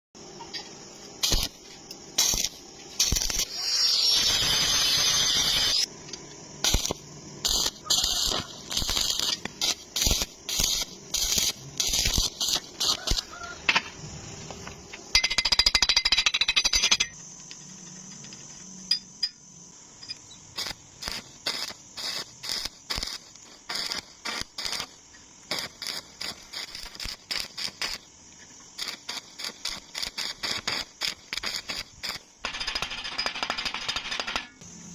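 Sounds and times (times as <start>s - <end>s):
welding arc crackling: 1.0s - 5.9s, 6.5s - 13.6s, 20.5s - 34.6s.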